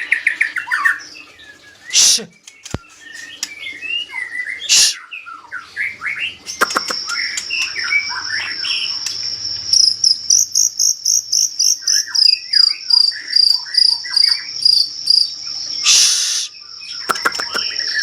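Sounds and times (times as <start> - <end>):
bird singing whistled phrases: 0.6 - 9.2, 15.7 - 18.0
insect trill: 5.8 - 18.0.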